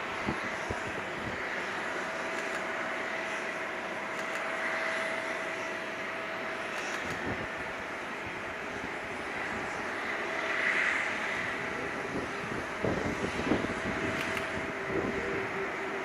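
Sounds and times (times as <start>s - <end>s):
jet engines roaring with whine: 0.0s - 16.0s.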